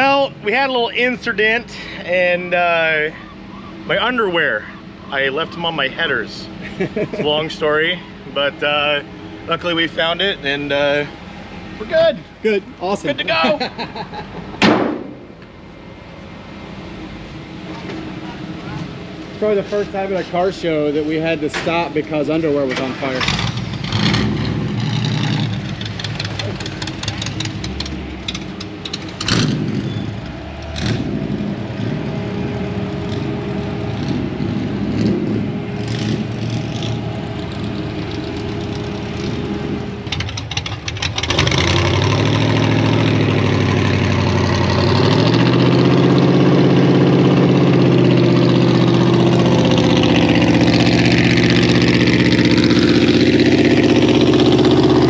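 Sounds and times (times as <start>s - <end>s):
truck engines running: 0.0s - 55.0s
nearby truck engine revving: 22.7s - 55.0s.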